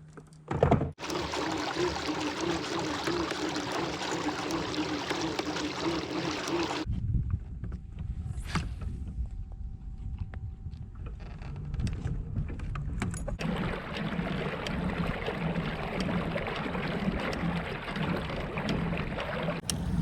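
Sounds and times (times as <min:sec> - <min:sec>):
water swishing along kayak hull: 0:00.9 - 0:06.9, 0:13.4 - 0:20.0.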